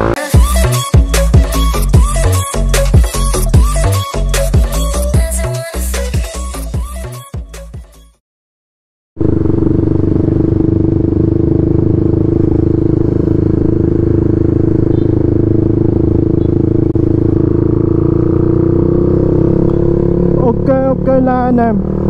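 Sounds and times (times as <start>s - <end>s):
motorcycle engine cruising: 9.2s - 22.0s.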